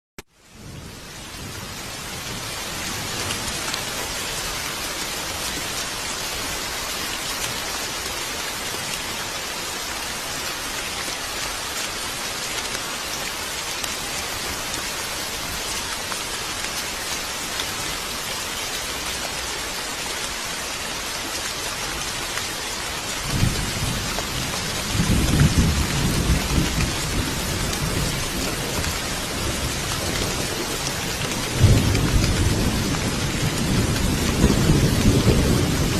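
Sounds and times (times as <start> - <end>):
rain falling: 0.2 - 35.9
low rumbling thunder: 23.2 - 35.9.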